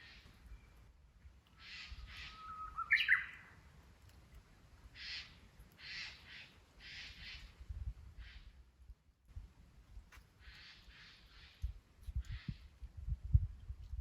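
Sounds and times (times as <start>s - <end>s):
bird singing whistle: 2.0s - 3.5s.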